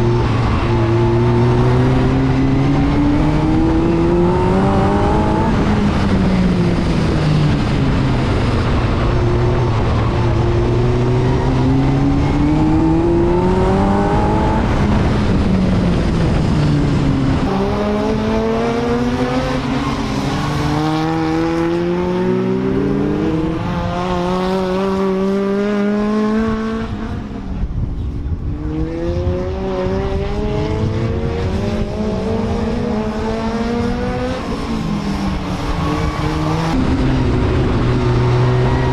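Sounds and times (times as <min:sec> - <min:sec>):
stock car engine revving: 0:00.0 - 0:16.5, 0:17.2 - 0:27.3.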